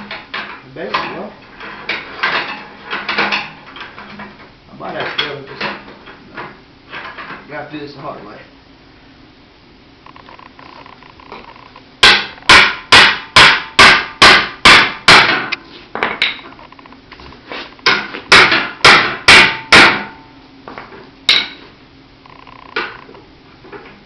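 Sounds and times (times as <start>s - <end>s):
tire iron striking metal: 12.0s - 16.4s, 17.8s - 20.3s, 21.3s - 21.7s.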